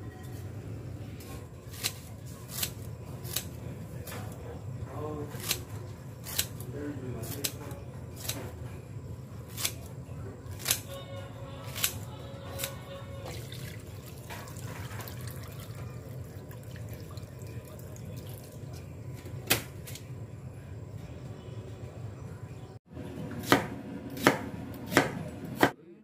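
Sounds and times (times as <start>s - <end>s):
liquid trickling and dripping: 13.2s - 18.9s.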